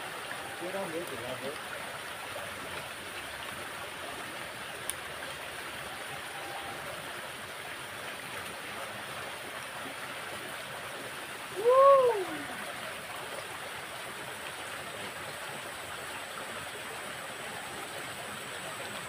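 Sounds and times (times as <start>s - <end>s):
flowing water in a ditch: 0.0s - 19.0s
loud cry: 11.6s - 12.6s.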